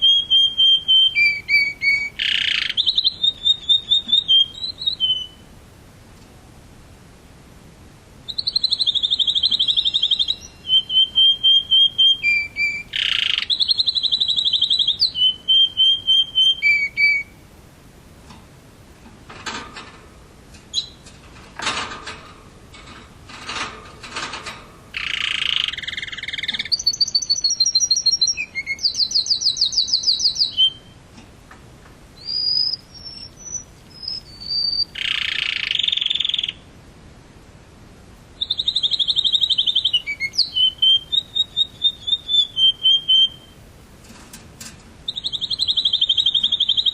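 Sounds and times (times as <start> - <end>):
harsh scratchy bird calls: 0.0 - 5.4, 8.3 - 17.4, 23.4 - 30.8, 32.2 - 36.6, 38.4 - 43.7, 45.1 - 46.9
canary singing trills: 0.0 - 5.5, 8.2 - 17.5, 20.7 - 21.2, 24.9 - 31.0, 32.2 - 36.7, 38.4 - 43.7, 45.1 - 46.9.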